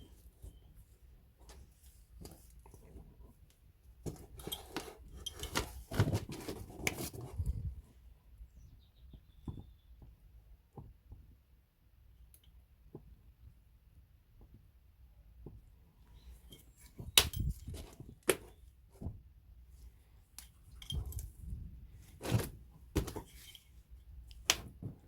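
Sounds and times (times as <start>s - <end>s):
hand tools clattering and clinking: 4.1s - 6.6s, 20.7s - 21.3s.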